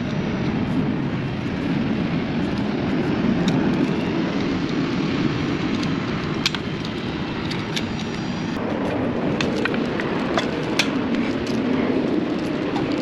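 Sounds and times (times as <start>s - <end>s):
low rumble of running machinery: 0.0s - 13.0s
hand tools clicking and tapping: 3.4s - 4.8s, 5.6s - 11.7s, 12.3s - 13.0s.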